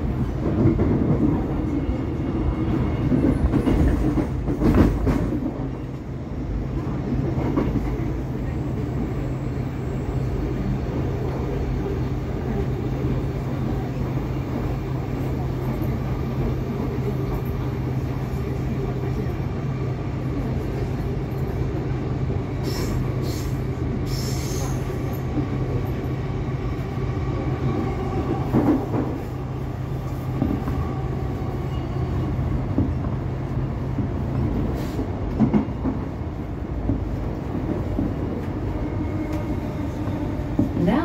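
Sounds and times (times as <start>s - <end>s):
train wheels rumbling on rails: 0.0s - 41.0s
train knocks: 3.0s - 5.7s, 27.8s - 29.3s, 34.5s - 36.2s.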